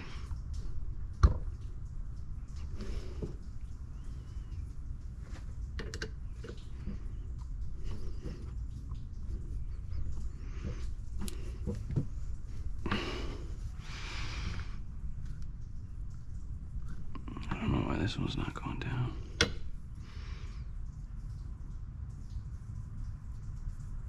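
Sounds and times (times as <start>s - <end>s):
rustling hiss: 0.0s - 20.7s
steady low hum: 0.0s - 24.0s
clicks and light knocks: 5.3s - 12.2s, 19.4s - 19.7s.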